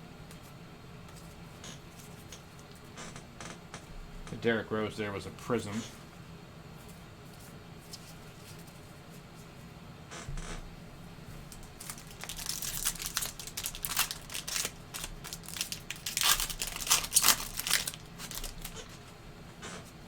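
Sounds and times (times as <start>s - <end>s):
foil wrapper tearing and crinkling: 11.5s - 19.0s.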